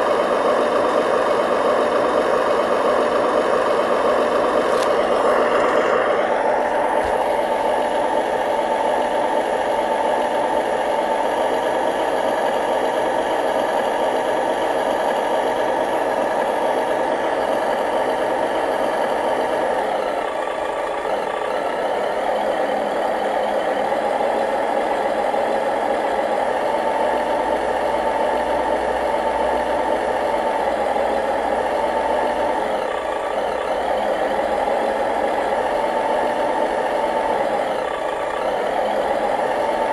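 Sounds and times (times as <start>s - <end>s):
model truck motor whine: 0.0s - 39.9s.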